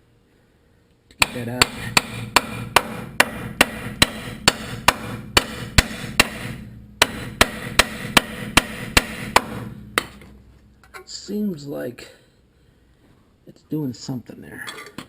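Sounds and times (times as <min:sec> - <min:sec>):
hammer striking steel: 0:01.1 - 0:11.7.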